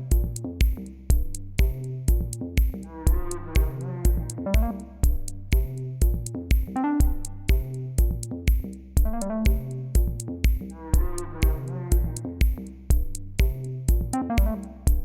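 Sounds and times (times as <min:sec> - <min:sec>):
sharp hi-hat ticks: 0:00.0 - 0:02.9, 0:04.1 - 0:08.8, 0:11.5 - 0:15.0
drum machine kicks: 0:00.0 - 0:15.0
synthesizer notes: 0:02.9 - 0:05.1, 0:06.8 - 0:07.6, 0:09.1 - 0:10.0, 0:10.8 - 0:12.2, 0:14.1 - 0:15.0.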